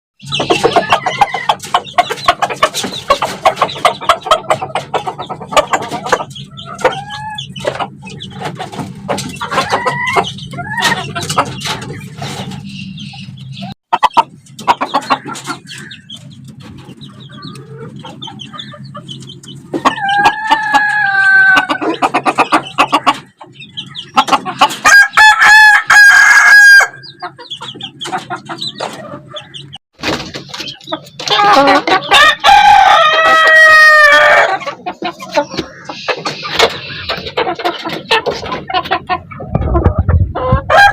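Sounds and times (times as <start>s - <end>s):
chickens clucking: 0.2s - 40.9s
rooster crowing: 24.9s - 27.0s, 32.2s - 34.6s, 40.7s - 40.9s.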